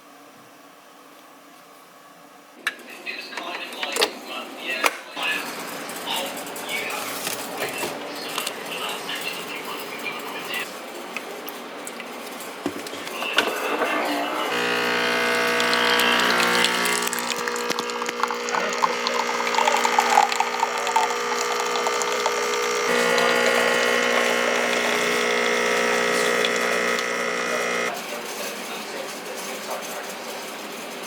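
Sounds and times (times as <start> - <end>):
machine motor humming: 13.4 - 27.9.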